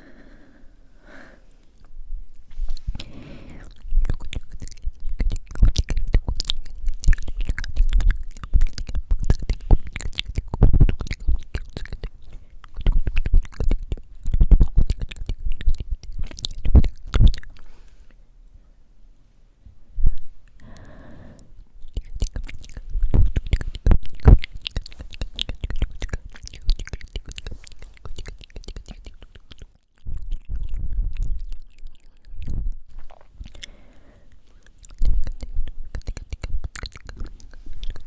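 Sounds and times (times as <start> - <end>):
person breathing: 0.0 - 1.8, 2.5 - 3.8, 17.6 - 18.2, 19.7 - 21.7, 33.5 - 34.8
tongue clicks and lip smacks: 1.8 - 18.2, 20.0 - 38.0.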